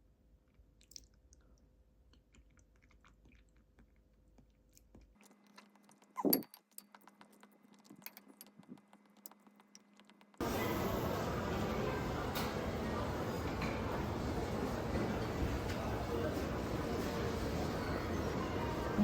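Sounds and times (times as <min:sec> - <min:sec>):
soft chewing: 0:00.3 - 0:10.1.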